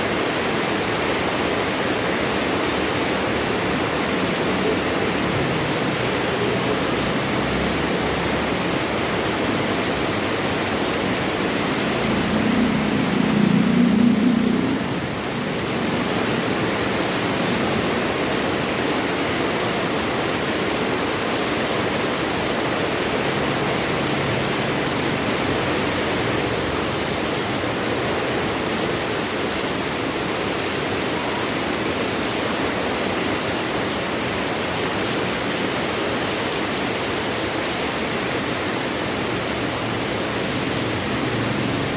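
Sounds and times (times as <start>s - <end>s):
steady rain falling: 0.0s - 41.9s.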